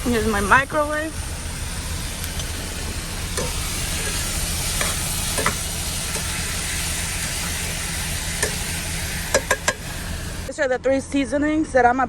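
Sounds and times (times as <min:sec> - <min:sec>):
meat sizzling in a pot: 0:00.0 - 0:10.5
low steady hum: 0:00.0 - 0:12.0
tongs clicking and scraping: 0:09.3 - 0:09.8.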